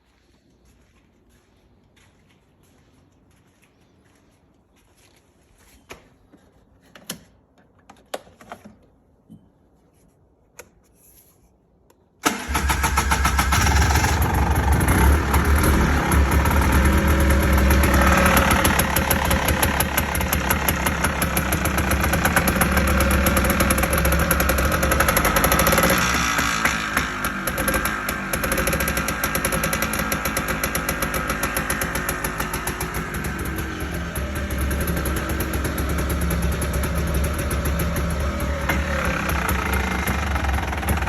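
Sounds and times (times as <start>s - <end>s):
engine starting and running: 12.2s - 41.0s.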